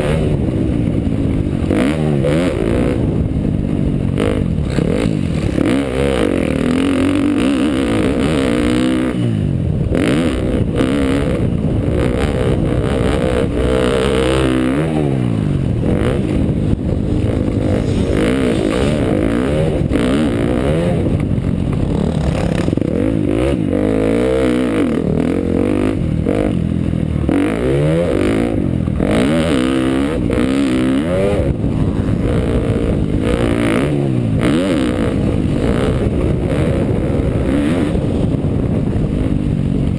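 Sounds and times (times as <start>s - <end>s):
dirt bike engine revving: 0.0s - 39.9s
steady rushing noise: 0.0s - 39.9s
clatter: 4.1s - 8.9s, 15.8s - 30.7s.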